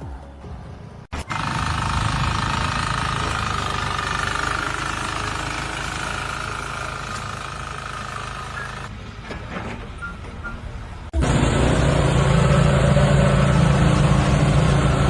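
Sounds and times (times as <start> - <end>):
machinery running loudly: 1.2 - 8.9, 11.2 - 15.0.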